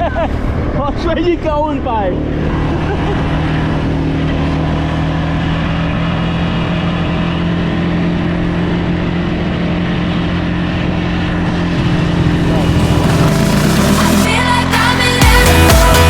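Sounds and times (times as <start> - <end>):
motorbike engine running: 6.4 - 16.0.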